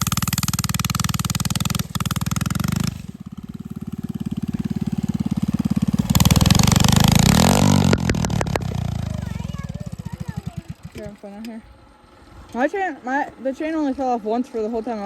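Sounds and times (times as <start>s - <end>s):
small bike engine revving: 0.0s - 15.0s
sharp clicks: 7.3s - 9.0s.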